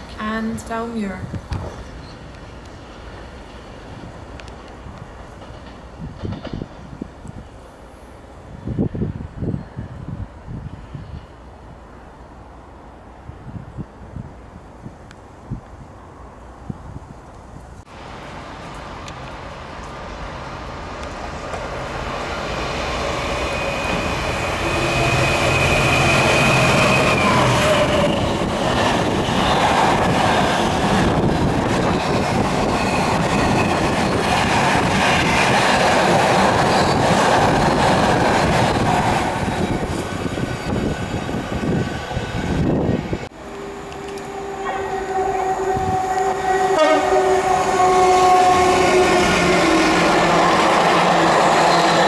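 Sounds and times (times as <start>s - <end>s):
diesel locomotive engine passing: 17.8s - 52.0s.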